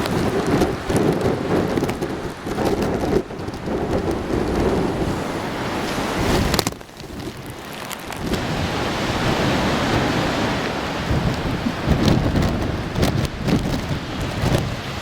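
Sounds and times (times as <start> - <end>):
rain: 0.0 - 15.0
surf breaking: 0.0 - 15.0
wind buffeting microphone: 0.0 - 15.0.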